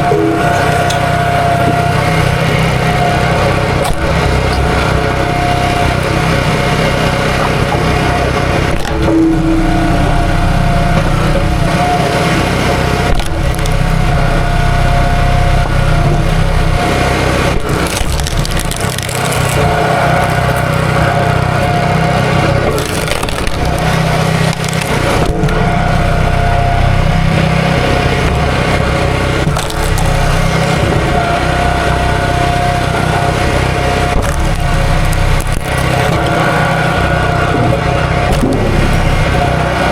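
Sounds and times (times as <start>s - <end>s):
small gasoline engine running: 0.0s - 39.9s
wood cracking and splitting: 0.0s - 39.9s.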